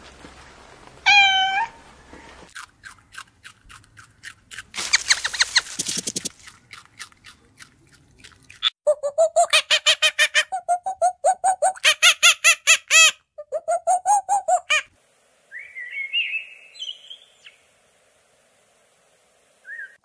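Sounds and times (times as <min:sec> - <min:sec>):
cat meowing: 0:01.1 - 0:01.8
short squeaky calls: 0:04.8 - 0:06.3
rapid clicks and crackles: 0:04.8 - 0:06.4.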